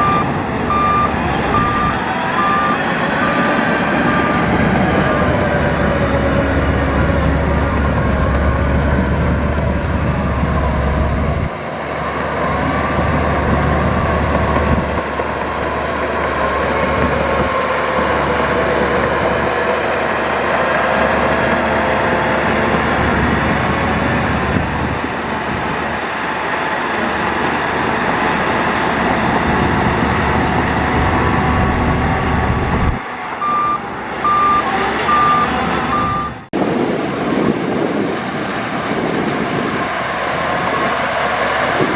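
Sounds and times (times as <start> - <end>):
reversing alarm beeps: 0.0 - 3.5, 33.4 - 36.4
diesel machinery running: 0.0 - 41.9.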